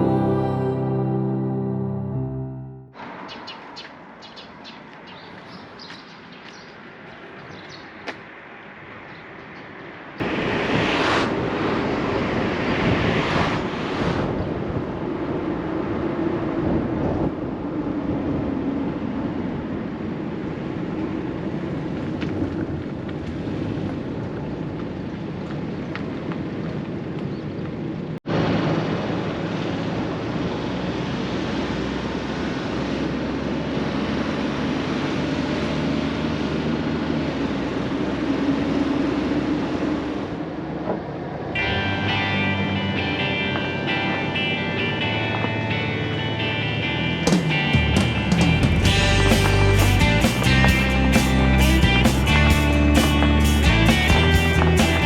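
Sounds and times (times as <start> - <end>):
steady rushing noise: 10.2 - 18.5, 47.4 - 55.0.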